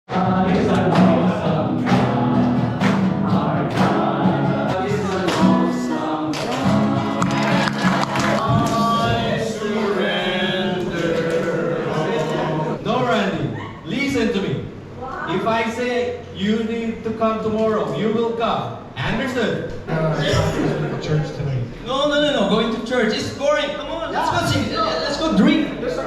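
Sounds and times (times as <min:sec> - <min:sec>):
group singing worship song: 0:00.1 - 0:12.8, 0:19.9 - 0:21.1.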